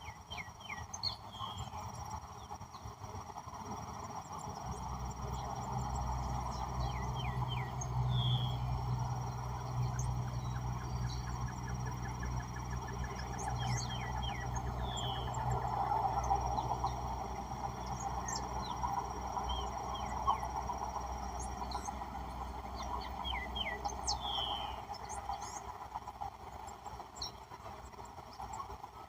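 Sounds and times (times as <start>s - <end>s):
insect drone: 0.0s - 29.0s
low engine rumble: 0.0s - 29.0s
birds chirping and calling: 22.8s - 24.8s.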